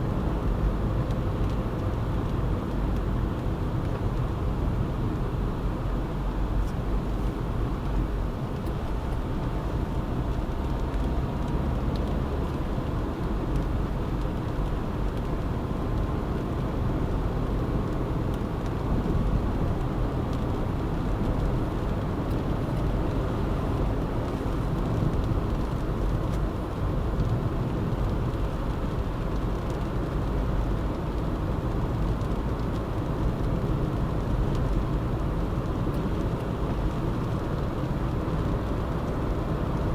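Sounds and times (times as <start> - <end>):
car road noise: 0.0 - 39.9.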